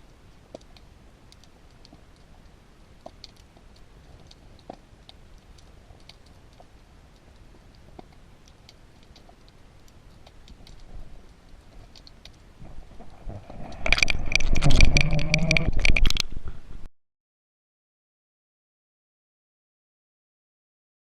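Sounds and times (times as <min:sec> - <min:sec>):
loud underwater rumbling: 0:12.7 - 0:16.8
faint underwater clicking: 0:13.7 - 0:16.4.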